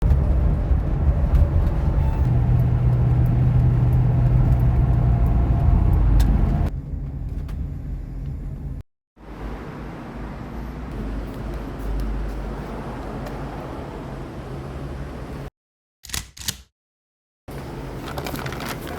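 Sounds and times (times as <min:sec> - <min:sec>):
motor vehicle engine rumble: 0:00.0 - 0:08.8.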